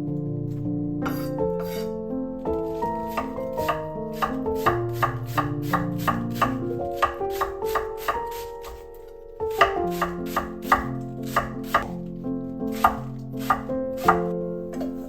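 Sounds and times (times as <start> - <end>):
soft background music: 0.0 - 15.0
knife chopping on cutting board: 3.0 - 8.8, 9.5 - 12.0, 12.8 - 14.9.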